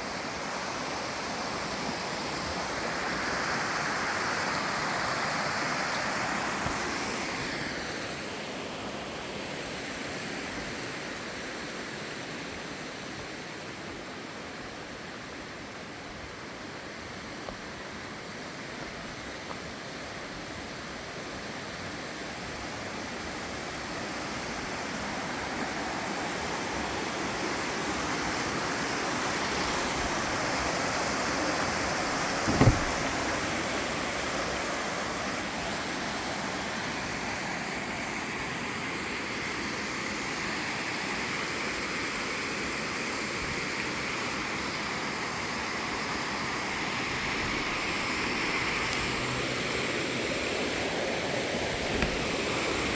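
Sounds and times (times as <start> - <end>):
water rushing and splashing: 0.0 - 14.0, 14.9 - 38.7, 46.0 - 52.9
brief thump: 32.4 - 33.3, 51.9 - 52.3.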